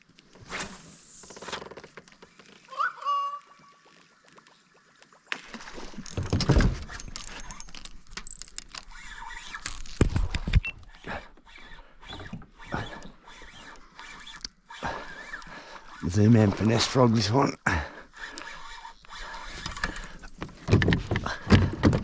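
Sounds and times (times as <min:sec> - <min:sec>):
fishing gear rattling: 0:05.4 - 0:22.0.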